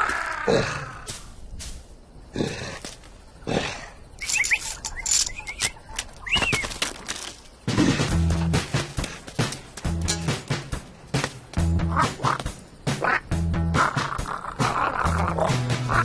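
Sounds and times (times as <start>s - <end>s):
short quick chirps: 4.2s - 6.7s
sharp clicks: 4.2s - 7.1s.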